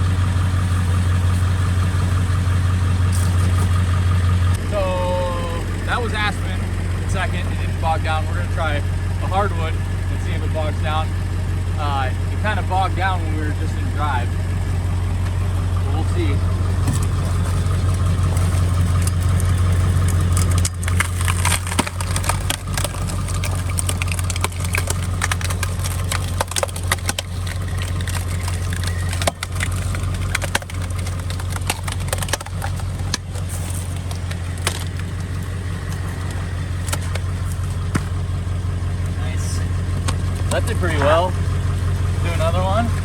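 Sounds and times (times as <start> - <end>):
truck engine running: 0.0 - 43.0
log cracking and snapping: 14.9 - 38.4.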